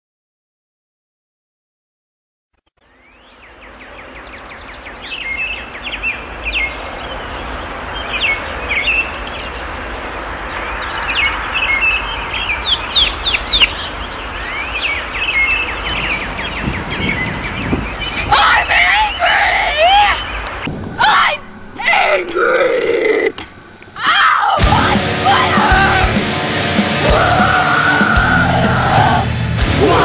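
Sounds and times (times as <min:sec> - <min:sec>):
birds chirping: 0:02.8 - 0:30.0
outdoor hiss: 0:02.9 - 0:29.7
wind rumble on microphone: 0:05.6 - 0:19.3, 0:19.9 - 0:21.8.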